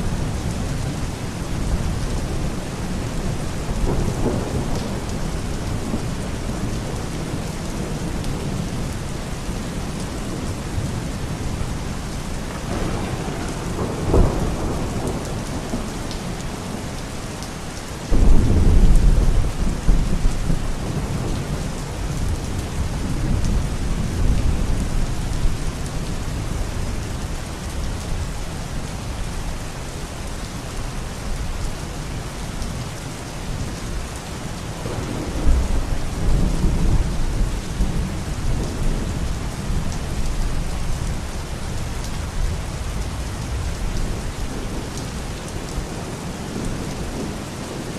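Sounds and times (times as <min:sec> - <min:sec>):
steady rain: 0:00.0 - 0:47.9
thunder rumbling: 0:12.5 - 0:17.0, 0:17.7 - 0:26.8, 0:34.8 - 0:45.8.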